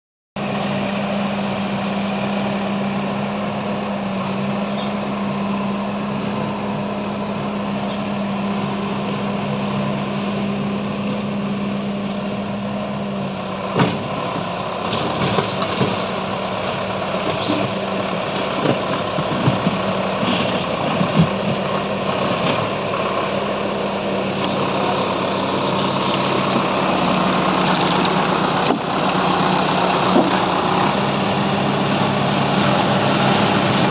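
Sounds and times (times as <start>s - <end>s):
diesel engine running: 0.4s - 33.9s.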